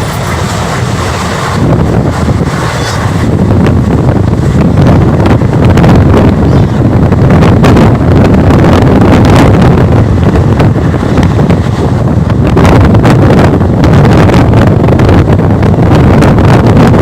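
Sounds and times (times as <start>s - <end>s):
train rumbling at speed: 0.0s - 17.0s
wind buffeting microphone: 0.0s - 17.0s.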